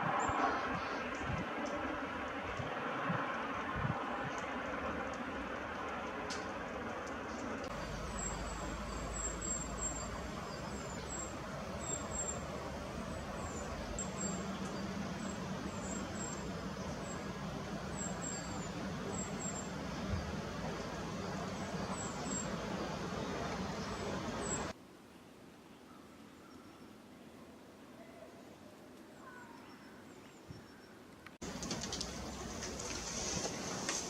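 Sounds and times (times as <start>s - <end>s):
road traffic rumble: 0.0s - 24.8s, 31.4s - 34.0s
small birds chirping: 7.7s - 24.7s.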